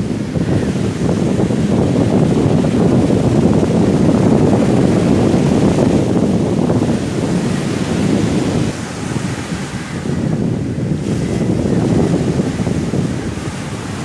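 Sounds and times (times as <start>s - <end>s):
sea waves on a beach: 0.0s - 14.0s
strong wind: 0.0s - 14.0s.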